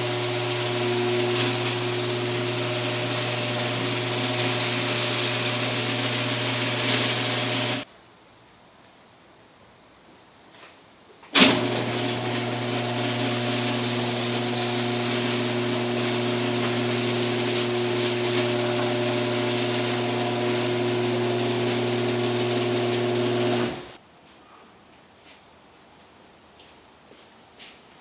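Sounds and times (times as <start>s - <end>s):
garage door motor humming: 0.0s - 7.8s, 11.4s - 24.0s
garage door opener clunk: 0.0s - 7.8s, 11.4s - 24.0s.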